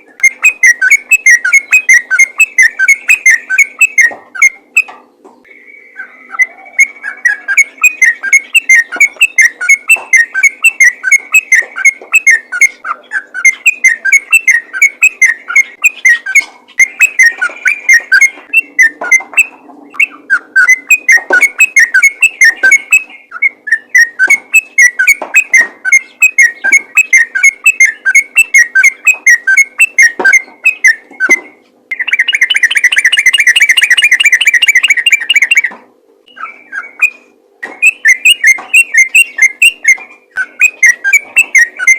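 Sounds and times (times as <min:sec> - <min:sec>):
bird singing whistled notes: 0:00.2 - 0:35.7, 0:36.3 - 0:41.9.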